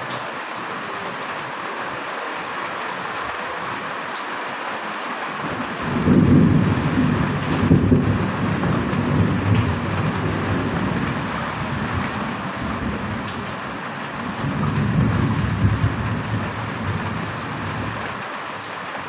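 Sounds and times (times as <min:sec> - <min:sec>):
heavy rain: 0:00.0 - 0:19.0
thunder rumbling: 0:05.4 - 0:18.2.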